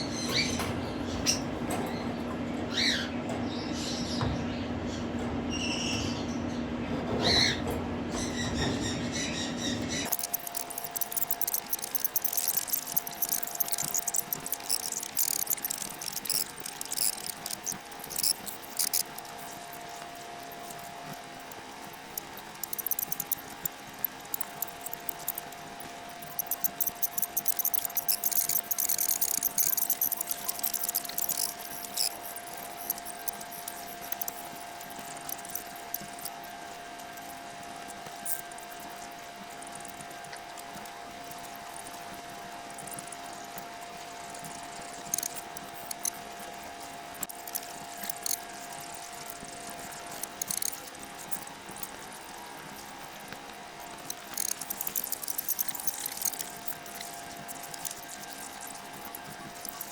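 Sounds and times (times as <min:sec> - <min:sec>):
baby budgies chittering: 0:00.0 - 0:06.6, 0:08.2 - 0:36.3.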